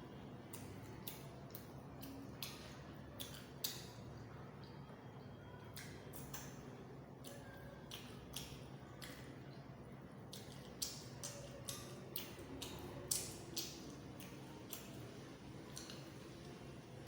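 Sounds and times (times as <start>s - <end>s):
lip smacks: 0.5s - 4.0s, 10.3s - 15.0s
wet chewing: 10.3s - 16.2s.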